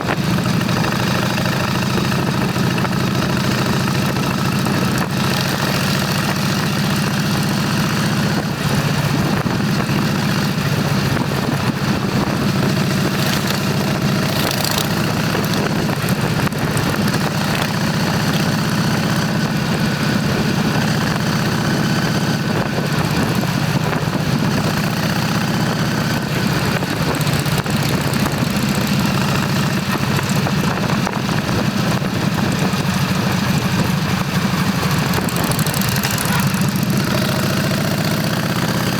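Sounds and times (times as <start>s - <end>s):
constant rushing noise: 0.0s - 38.9s
motorcycle engine running: 0.0s - 38.9s.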